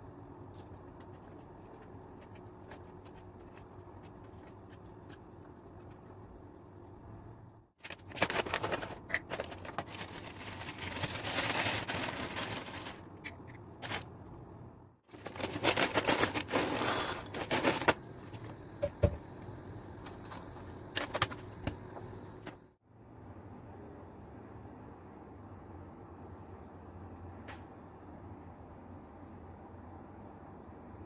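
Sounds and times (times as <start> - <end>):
rustling: 7.8 - 14.1, 15.1 - 18.5
objects clattering: 15.1 - 19.2.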